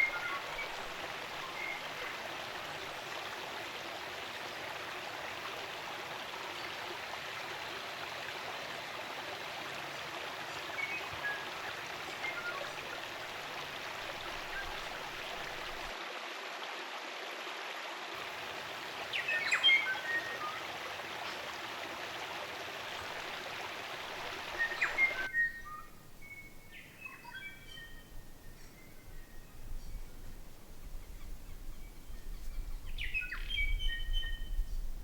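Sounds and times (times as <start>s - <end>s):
stream water rushing: 0.0s - 25.5s
forest birds calling: 19.1s - 20.6s, 24.3s - 35.0s.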